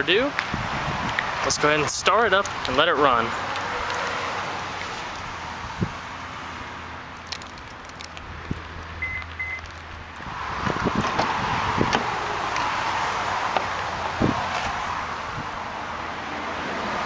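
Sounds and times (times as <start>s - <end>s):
electronic chime beeps: 9.0s - 9.6s.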